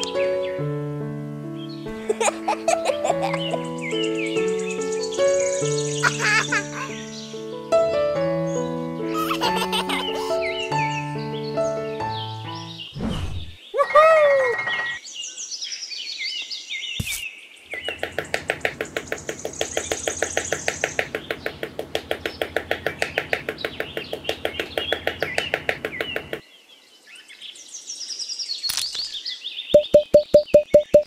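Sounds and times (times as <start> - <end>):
birds chirping: 1.6 - 7.8, 8.4 - 31.0
small hammer tapping wood: 17.8 - 26.4.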